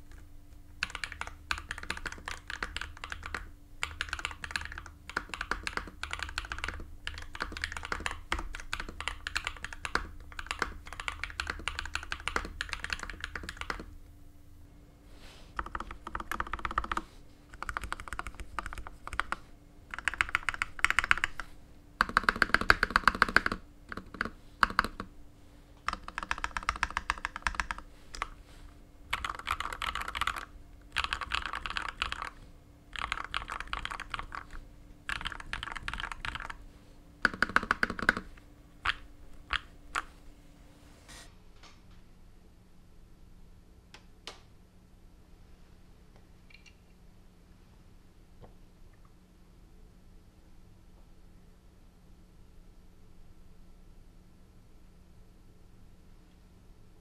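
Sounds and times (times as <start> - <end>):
mechanical keyboard typing: 0.8 - 13.9, 15.6 - 25.1, 25.8 - 28.4, 29.1 - 36.6, 37.2 - 40.1.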